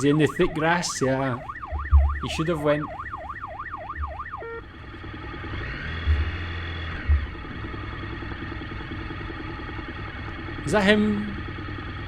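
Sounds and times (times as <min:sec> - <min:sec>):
police siren: 0:00.0 - 0:12.0
vehicle engine running: 0:00.0 - 0:12.0
dull thumps: 0:01.4 - 0:04.6, 0:06.0 - 0:07.5.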